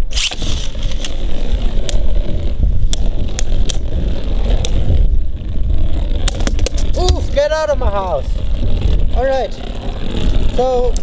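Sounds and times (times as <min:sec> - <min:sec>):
spinning tops whirring and scraping: 0:00.0 - 0:11.0.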